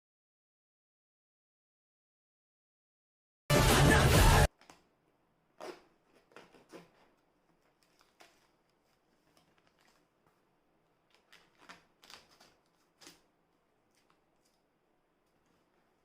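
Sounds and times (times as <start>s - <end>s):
packaging rustling and clicks: 5.6s - 16.0s.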